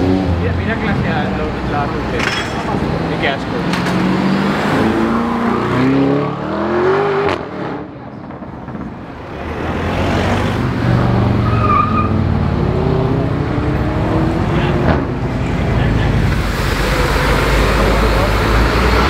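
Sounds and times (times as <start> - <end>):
car engine revving: 9.3 - 19.0
steady engine drone: 15.4 - 19.0.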